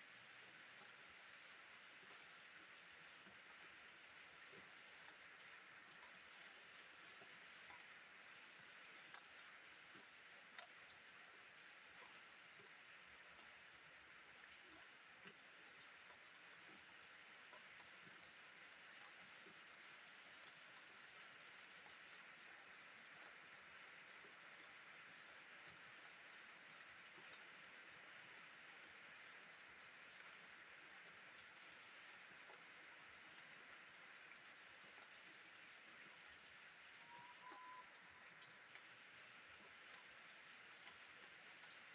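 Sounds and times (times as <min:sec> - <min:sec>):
faint steady rain hiss: 0:00.0 - 0:41.9
raindrops ticking: 0:02.8 - 0:20.9, 0:28.2 - 0:41.9.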